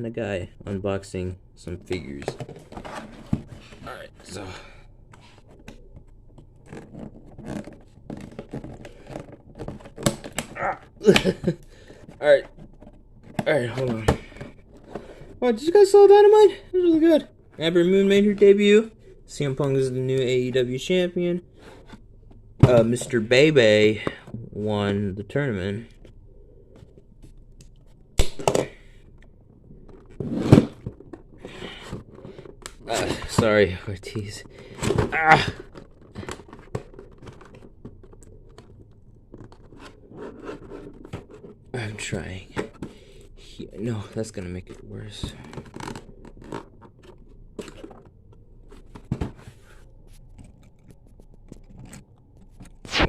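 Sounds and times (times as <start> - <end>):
packaging rustling: 34.4 - 41.7, 42.7 - 53.0.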